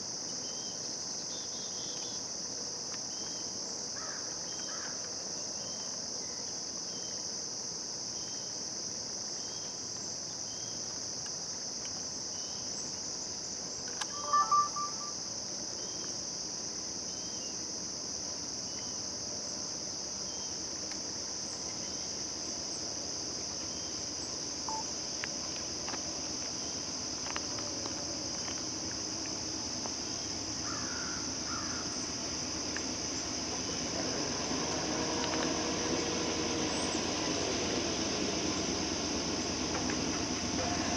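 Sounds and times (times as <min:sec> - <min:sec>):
crickets and insects chirping: 0:00.0 - 0:40.9
brief loud tone: 0:14.0 - 0:15.3.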